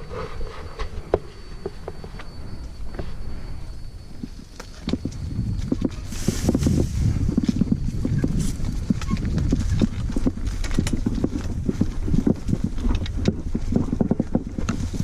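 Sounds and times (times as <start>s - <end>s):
mountain bike rattling on trail: 4.0s - 15.0s.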